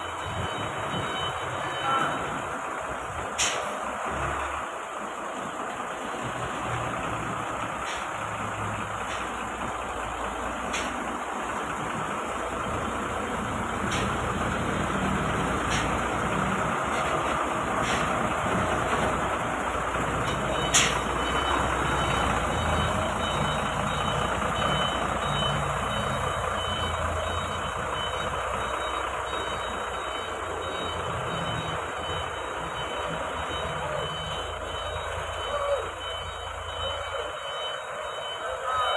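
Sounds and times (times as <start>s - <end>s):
heavy truck engine running: 0.0s - 38.9s
faint steady high tone: 33.0s - 38.9s.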